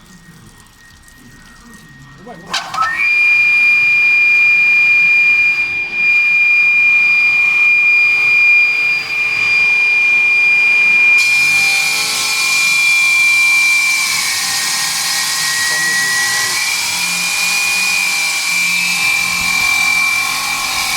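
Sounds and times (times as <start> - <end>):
stone-cutting circular saw whine: 2.0 - 20.9.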